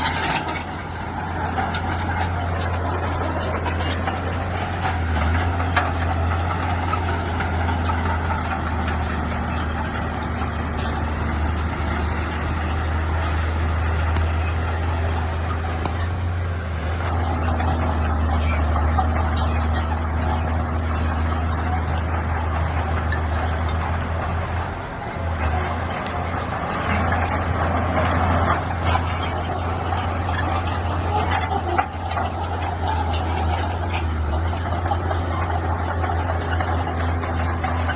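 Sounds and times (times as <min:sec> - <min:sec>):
diesel engine humming: 0:00.0 - 0:37.9.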